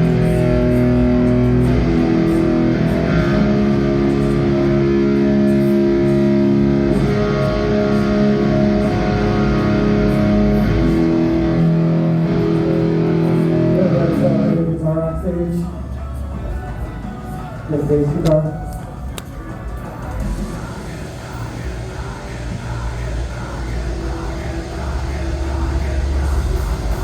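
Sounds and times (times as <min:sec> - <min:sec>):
electric guitar ringing chords: 0:00.0 - 0:27.0.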